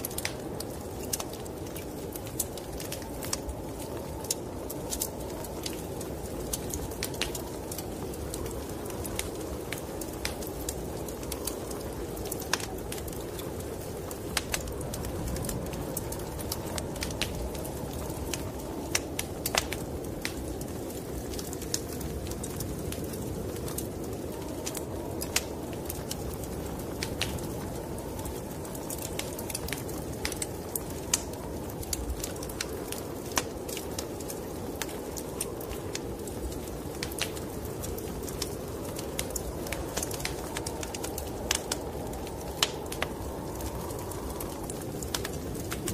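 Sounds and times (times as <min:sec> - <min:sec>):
snowstorm rushing noise: 0:00.0 - 0:45.9
wood fire crackling: 0:00.0 - 0:45.9.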